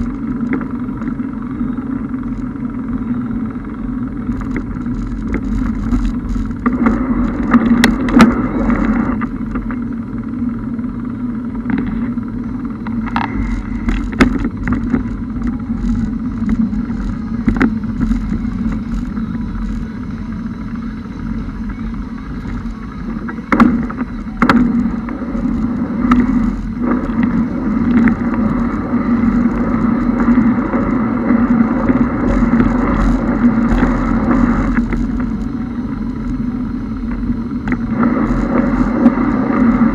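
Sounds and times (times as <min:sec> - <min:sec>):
car engine drone: 0:00.0 - 0:39.9
rushing noise: 0:00.0 - 0:39.9.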